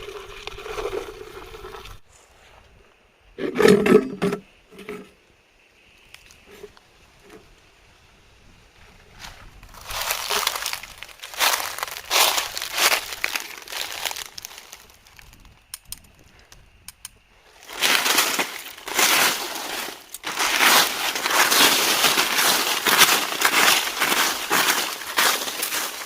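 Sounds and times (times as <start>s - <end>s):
dry leaves rustling and crunching: 9.1s - 15.4s, 17.5s - 26.0s
faint clicks: 15.2s - 17.2s.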